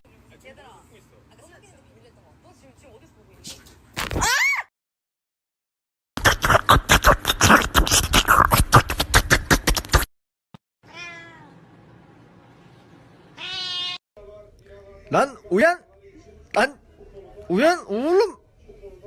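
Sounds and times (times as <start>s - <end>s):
cat meowing: 10.8s - 11.6s, 13.4s - 14.0s.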